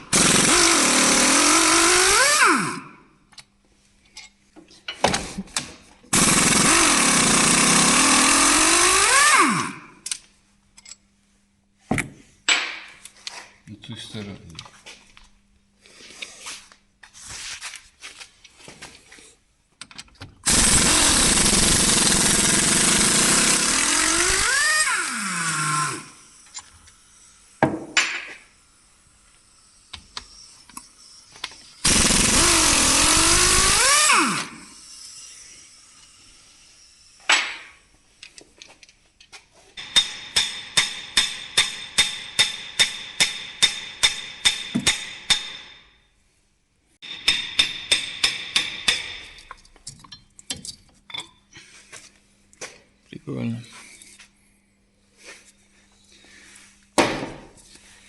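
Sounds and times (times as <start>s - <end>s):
air impact wrench running: 0.0s - 3.0s, 6.1s - 10.0s, 20.4s - 27.8s, 28.5s - 37.6s.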